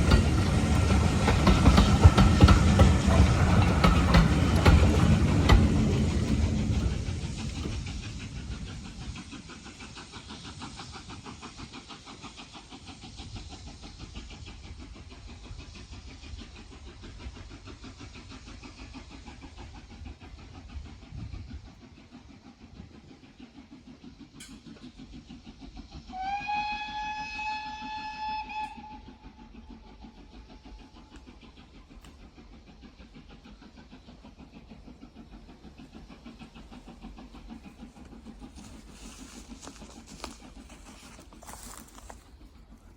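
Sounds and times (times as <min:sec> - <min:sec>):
steam locomotive chuffing: 0:00.0 - 0:42.9
steam whistle blast: 0:26.1 - 0:29.4.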